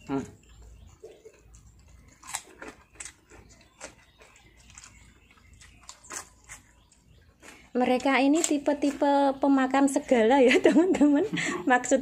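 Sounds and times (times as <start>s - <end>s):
chewing and mouth smacks: 0.4s - 7.7s.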